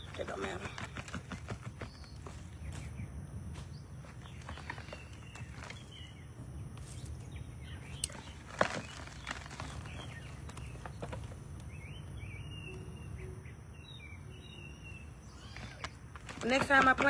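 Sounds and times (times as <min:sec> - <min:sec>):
birds chirping: 0:00.0 - 0:17.0
hands digging through soil: 0:03.6 - 0:06.1, 0:07.9 - 0:11.4.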